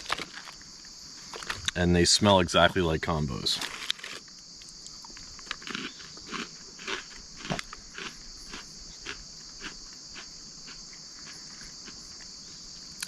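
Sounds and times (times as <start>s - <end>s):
crackers being chewed: 0.0s - 0.6s, 1.3s - 1.8s, 3.6s - 12.4s
crickets chirping: 0.0s - 13.0s.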